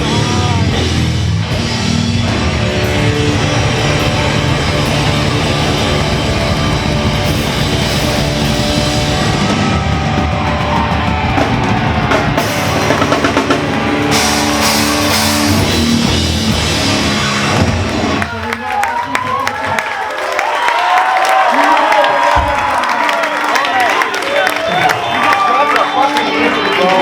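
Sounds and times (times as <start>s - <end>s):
distorted electric guitars: 0.0s - 18.6s
pounding drum kit: 0.0s - 19.8s, 22.2s - 23.1s.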